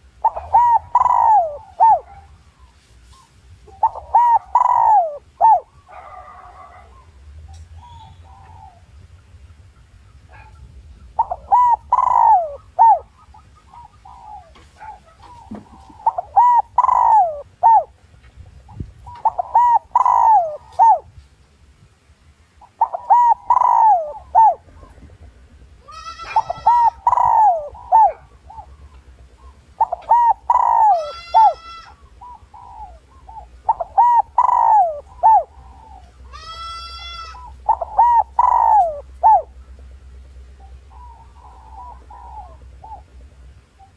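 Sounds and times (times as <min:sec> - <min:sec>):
dove cooing: 0:00.0 - 0:02.7, 0:03.6 - 0:21.2, 0:22.6 - 0:43.9
higher bird call: 0:00.2 - 0:02.2, 0:03.7 - 0:07.1, 0:11.2 - 0:18.0, 0:19.1 - 0:21.0, 0:22.6 - 0:24.7, 0:25.8 - 0:39.6.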